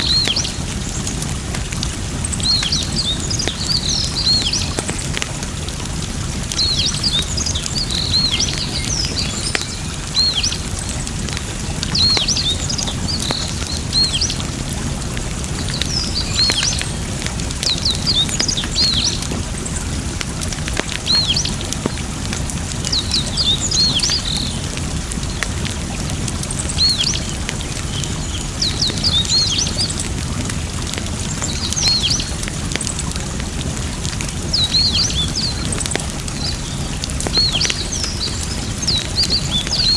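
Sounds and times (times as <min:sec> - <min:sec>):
fire crackling and popping: 0:00.0 - 0:39.9
flowing water: 0:00.0 - 0:39.9
small birds chirping: 0:00.0 - 0:39.9.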